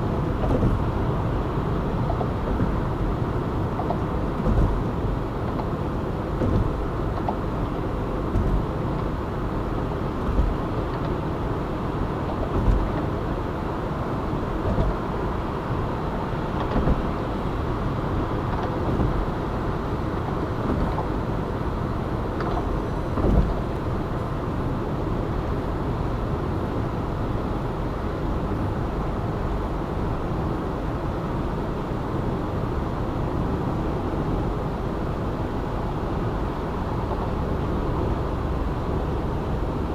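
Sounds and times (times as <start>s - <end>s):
road and tyre noise: 0.0s - 39.9s
car thumping over bumps: 0.1s - 13.4s, 14.3s - 24.6s.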